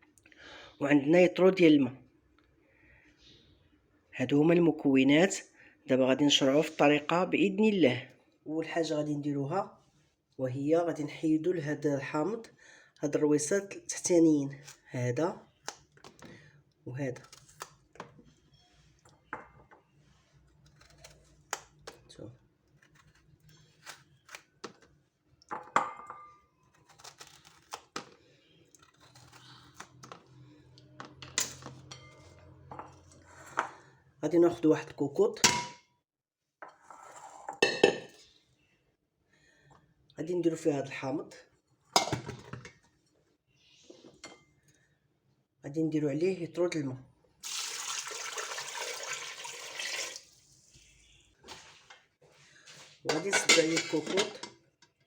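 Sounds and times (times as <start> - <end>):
water pouring into a pot: 47.4 - 50.5.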